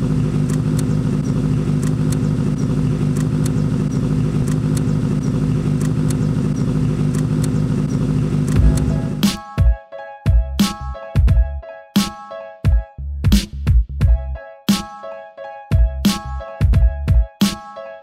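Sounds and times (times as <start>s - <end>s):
car engine idling: 0.0s - 9.3s.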